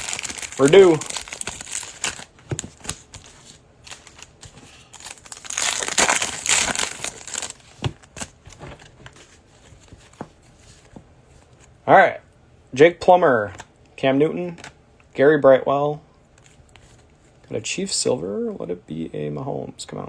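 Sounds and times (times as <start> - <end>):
cards clicking and tapping: 0.0 - 8.3
foil wrapper crinkling: 0.0 - 8.8.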